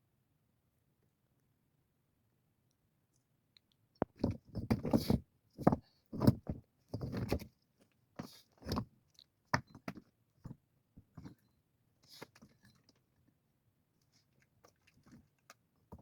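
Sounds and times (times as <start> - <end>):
objects knocking and scraping: 4.0 - 7.5.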